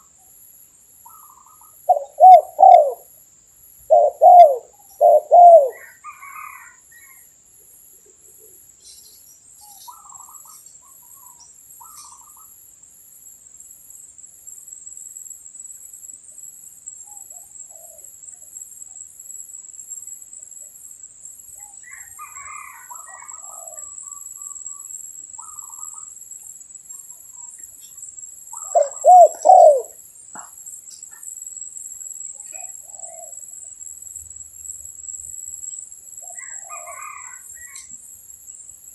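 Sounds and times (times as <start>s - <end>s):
dove cooing: 1.9s - 3.0s, 3.9s - 6.6s, 28.6s - 30.0s
soft bird chirps: 8.4s - 12.5s, 26.9s - 31.2s.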